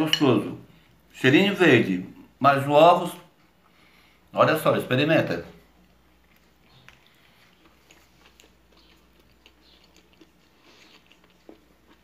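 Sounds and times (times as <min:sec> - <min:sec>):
faint chewing: 0:05.6 - 0:12.0
mouth clicks and crunches: 0:05.8 - 0:12.0.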